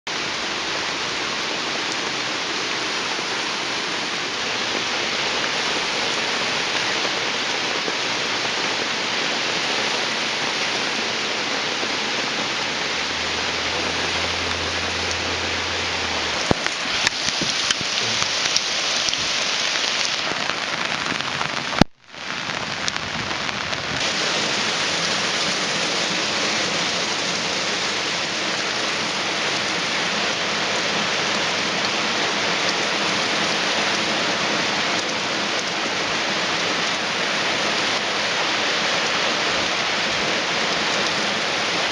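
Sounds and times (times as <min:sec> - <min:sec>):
heavy rain and hail pelting: 0:00.1 - 0:41.9
low rumble: 0:12.0 - 0:18.3.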